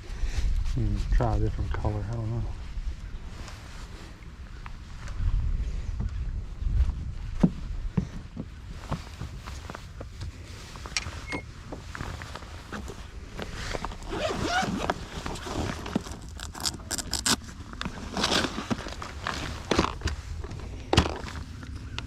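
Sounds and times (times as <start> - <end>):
steady low rumble: 0.0 - 22.0
rustling and clicking handling: 8.2 - 22.0.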